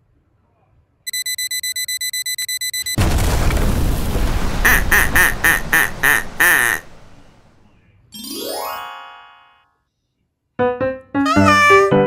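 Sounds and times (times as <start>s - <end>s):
rapid electronic beeping: 1.1s - 3.0s
explosion-like boom: 3.0s - 7.6s.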